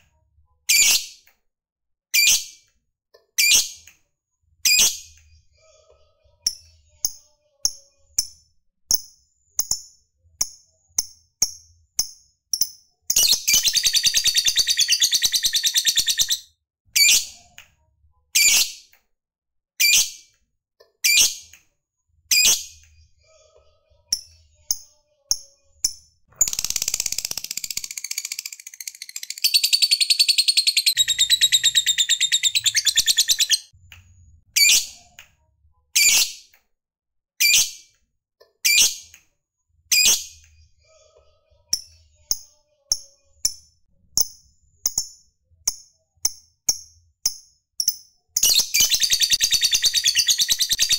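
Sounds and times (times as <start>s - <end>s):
bird chirping: 11.0s - 17.3s, 26.3s - 33.7s, 47.8s - 50.9s
bird rattling trill: 26.4s - 33.7s.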